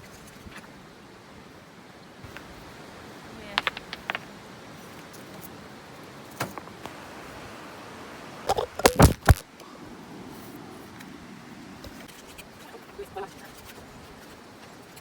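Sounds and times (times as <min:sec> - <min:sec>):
rocks knocking and clattering: 0:02.3 - 0:02.5, 0:03.4 - 0:04.4, 0:08.5 - 0:09.5.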